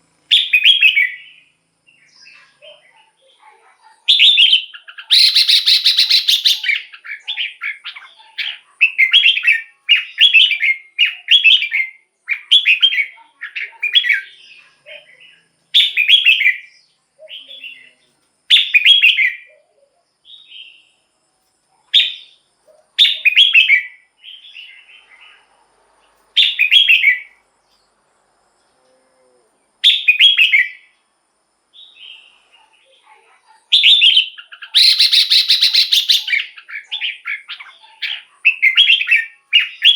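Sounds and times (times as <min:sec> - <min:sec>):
bird singing whistled phrases: 0:00.3 - 0:01.5, 0:04.1 - 0:14.3, 0:15.8 - 0:16.7, 0:18.5 - 0:19.5, 0:23.0 - 0:24.7, 0:26.4 - 0:27.4, 0:29.8 - 0:30.9, 0:33.7 - 0:39.9.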